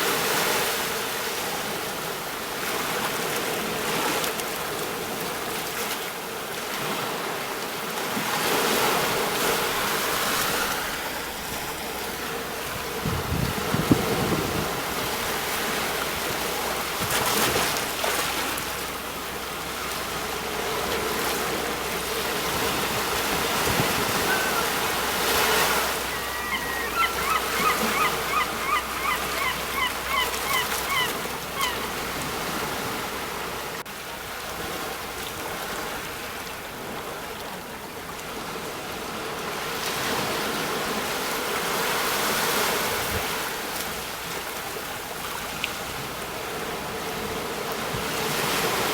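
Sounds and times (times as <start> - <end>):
sea waves washing onto shore: 0.0 - 48.9
bird honking calls: 23.9 - 32.0.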